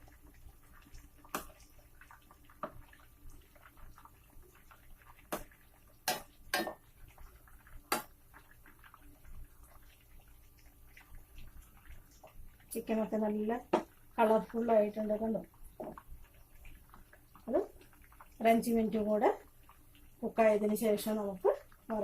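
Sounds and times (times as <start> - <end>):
oil sizzling from deep-frying: 0.0 - 22.0
metal spoon knocking on pan: 6.1 - 6.8.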